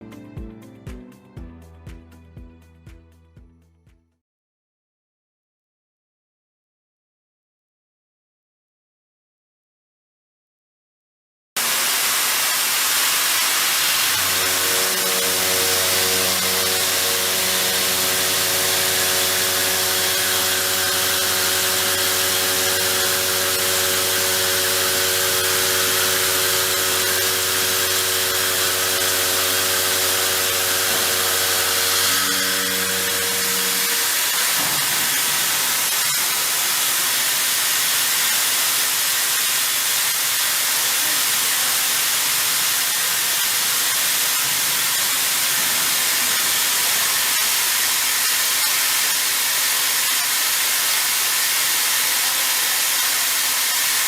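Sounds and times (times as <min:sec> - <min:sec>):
milling machine hiss: 0:11.6 - 0:54.0
machine tonal hum: 0:13.7 - 0:37.0.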